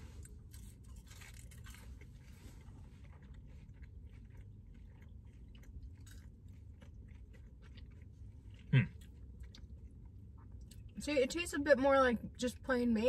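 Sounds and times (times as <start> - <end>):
chewing crunchy fries: 0.0 - 11.6
low steady hum: 0.0 - 13.0.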